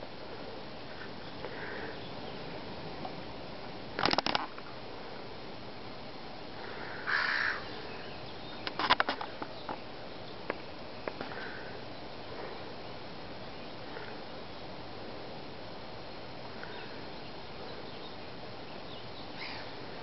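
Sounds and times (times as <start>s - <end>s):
steady background noise: 0.0s - 20.0s
sharp clicks: 4.0s - 4.5s
seagulls and birds calling: 6.6s - 10.4s, 16.5s - 20.0s
harsh bird call: 7.0s - 8.6s, 19.2s - 19.8s.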